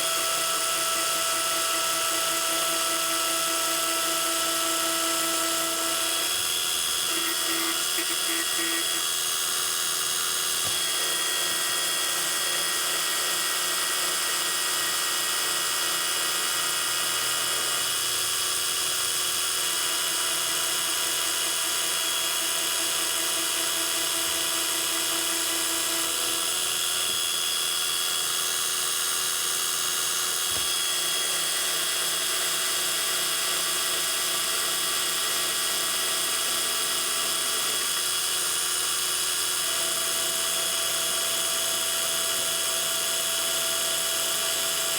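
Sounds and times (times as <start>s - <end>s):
metal lathe motor whine: 0.0s - 44.9s.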